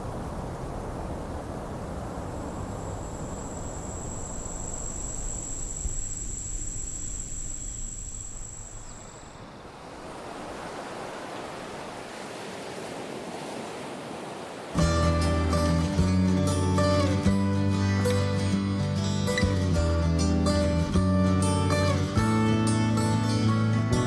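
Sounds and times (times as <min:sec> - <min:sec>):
steady rushing noise: 0:00.0 - 0:14.8
high-pitched whine: 0:01.7 - 0:09.7.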